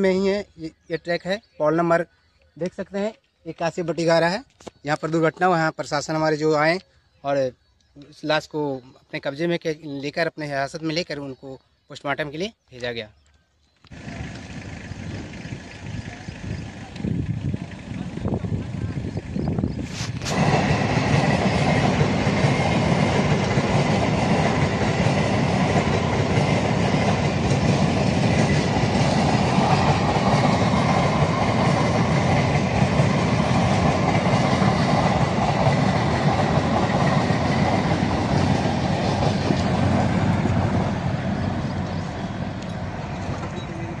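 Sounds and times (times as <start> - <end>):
train wheels rumbling on rails: 13.9 - 44.0.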